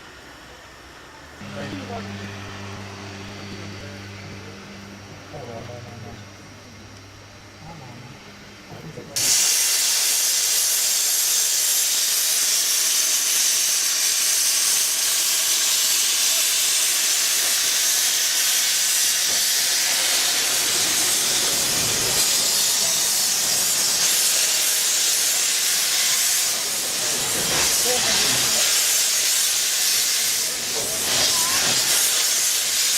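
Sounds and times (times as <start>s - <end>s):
steam locomotive hissing steam: 0.0s - 5.8s, 8.7s - 32.9s.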